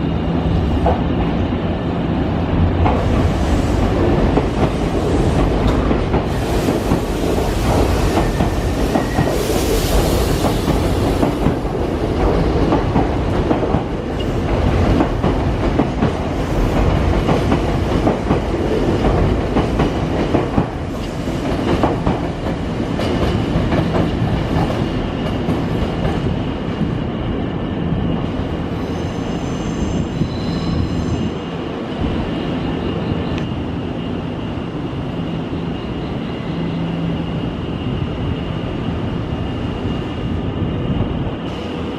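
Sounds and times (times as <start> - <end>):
high squeal of train: 0.0 - 41.9.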